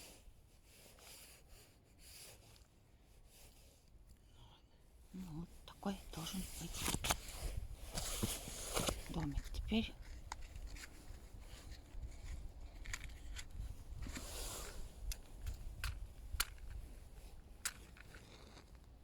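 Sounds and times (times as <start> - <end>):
short rustle: 5.5 - 15.7.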